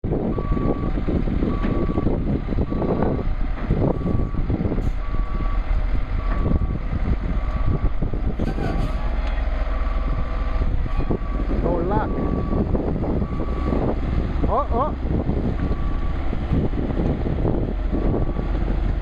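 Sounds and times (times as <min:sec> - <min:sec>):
heavy engines rumbling: 0:00.0 - 0:19.0
reversing alarm beeping: 0:00.3 - 0:00.9, 0:01.5 - 0:06.8, 0:11.0 - 0:14.0, 0:15.6 - 0:16.2.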